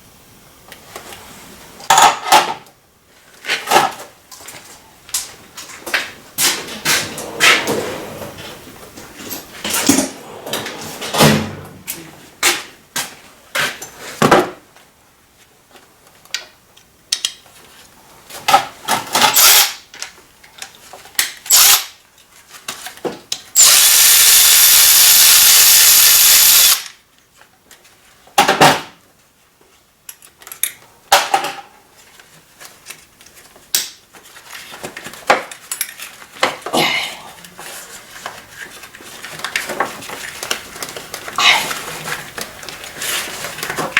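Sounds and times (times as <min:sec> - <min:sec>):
power tool running: 0:19.4 - 0:19.8, 0:21.5 - 0:21.9, 0:23.6 - 0:26.9.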